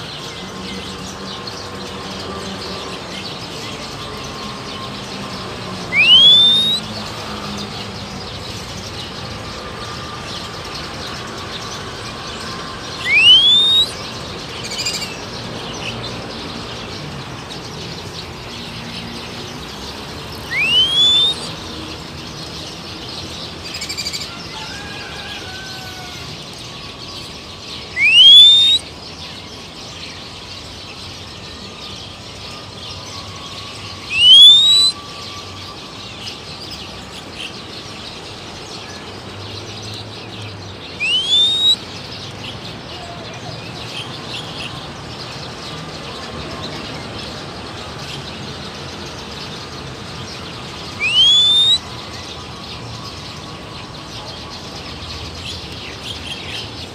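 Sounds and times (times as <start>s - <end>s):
wild birdsong: 0.0s - 56.9s
loud rising whistles: 5.8s - 6.9s, 13.0s - 14.0s, 20.4s - 21.6s, 27.9s - 28.8s, 34.0s - 35.5s, 41.0s - 41.9s, 51.0s - 51.9s.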